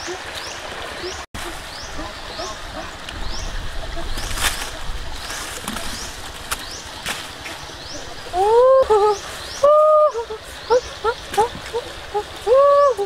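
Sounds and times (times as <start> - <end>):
leaves rustling: 0.0 - 13.0
bird hooting calls: 7.4 - 13.0.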